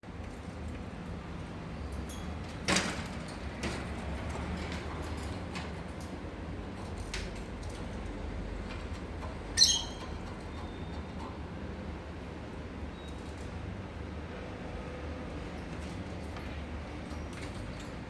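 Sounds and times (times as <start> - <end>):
lovebird shrill call: 9.6 - 10.0.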